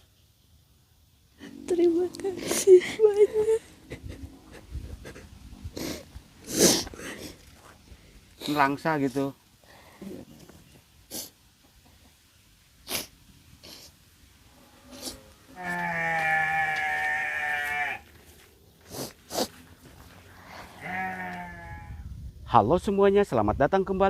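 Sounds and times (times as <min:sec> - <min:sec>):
farm animal calling: 0:14.5 - 0:22.0.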